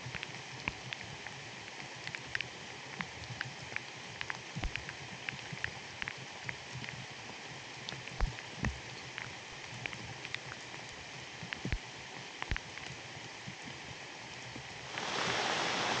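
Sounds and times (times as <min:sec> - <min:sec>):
raindrops ticking close by: 0:00.0 - 0:16.0
rain falling: 0:07.8 - 0:16.0.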